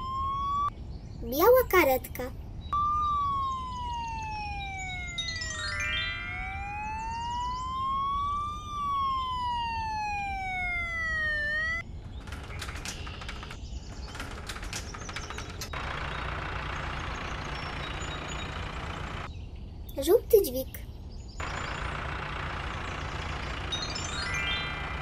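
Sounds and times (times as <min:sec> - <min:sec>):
cartoon ambulance siren wailing: 0:00.0 - 0:00.7, 0:02.7 - 0:11.8, 0:21.4 - 0:25.0
low engine-like rumble: 0:02.1 - 0:25.0
rattling clicks: 0:12.0 - 0:15.8.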